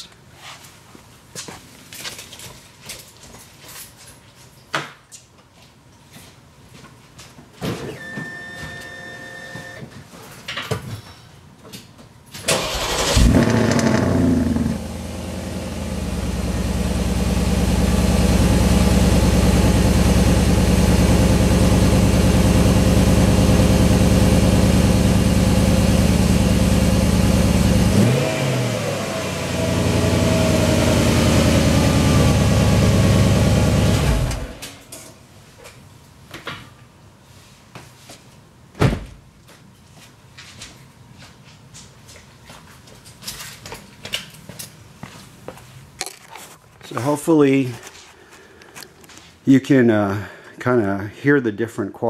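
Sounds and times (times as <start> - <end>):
car engine starting and idling: 12.5 - 34.8.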